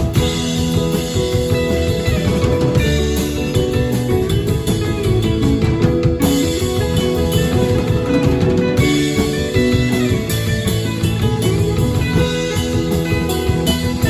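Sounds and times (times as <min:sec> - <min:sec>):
bass guitar: 0:00.0 - 0:14.0
drum kit: 0:00.0 - 0:14.0
electric guitars: 0:00.0 - 0:14.0.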